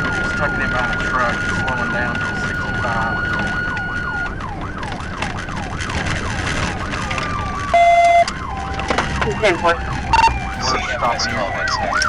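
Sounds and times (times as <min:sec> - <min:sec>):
police siren yelping: 0:00.0 - 0:12.0
road and engine noise: 0:00.0 - 0:12.0
horn tone: 0:07.1 - 0:12.0.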